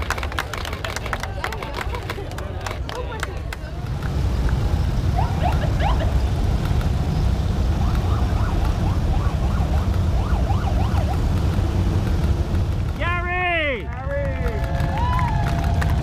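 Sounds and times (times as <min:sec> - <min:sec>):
motorcycles riding past: 0:03.5 - 0:13.1
engine whoops: 0:04.9 - 0:06.7, 0:13.6 - 0:16.0.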